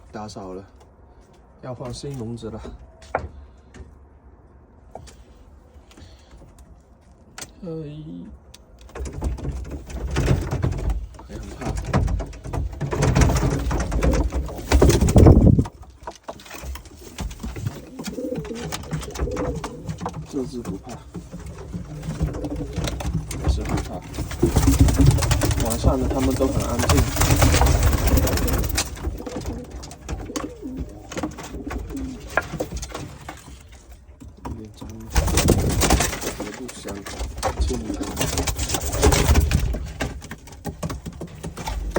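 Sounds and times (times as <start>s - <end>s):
scuffling and knocking clatter: 8.8s - 41.9s
pigeons fluttering and scrambling: 8.9s - 41.9s.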